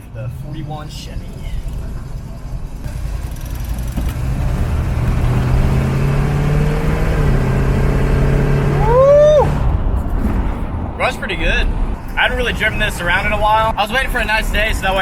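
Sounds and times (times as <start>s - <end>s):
truck engine running: 0.0s - 8.6s.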